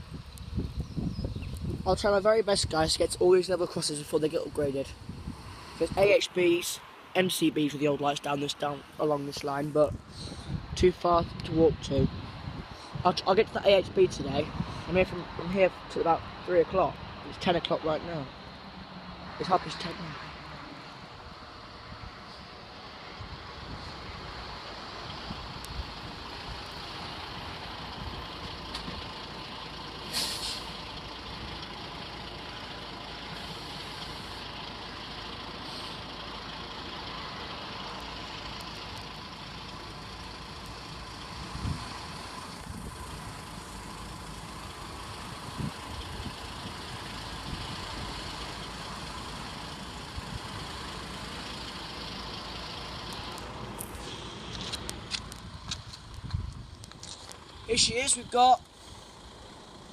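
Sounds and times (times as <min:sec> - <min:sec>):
heavy vehicle engine idling: 0:20.4 - 0:59.9
air brake hiss: 0:30.1 - 0:30.8.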